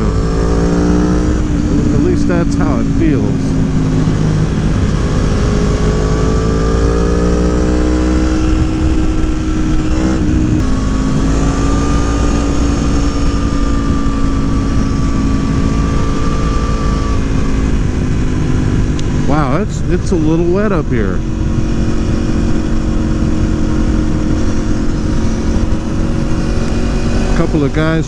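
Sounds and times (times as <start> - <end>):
motorcycle engine revving: 0.0 - 28.0
wind rushing over microphone: 0.0 - 28.0.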